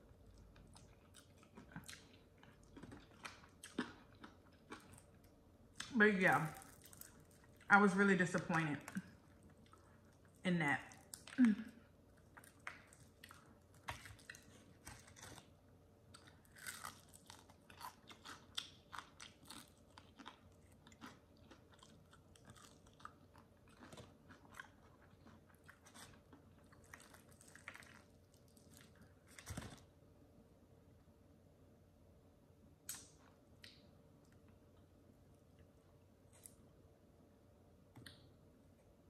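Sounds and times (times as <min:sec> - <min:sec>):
crunching fried chicken: 0:00.0 - 0:07.7, 0:11.0 - 0:29.9
wet chewing: 0:00.2 - 0:07.7, 0:11.0 - 0:29.9.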